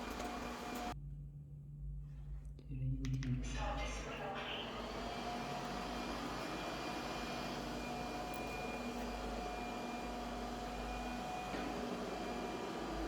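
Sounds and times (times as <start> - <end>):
robot vacuum whirring: 0.0 - 1.0, 4.6 - 13.0.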